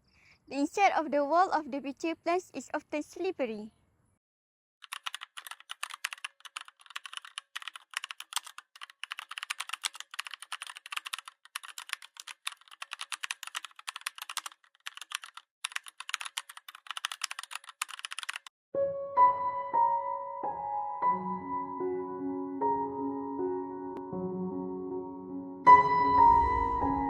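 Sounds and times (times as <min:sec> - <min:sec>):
typing on computer keyboard: 0:04.8 - 0:18.5.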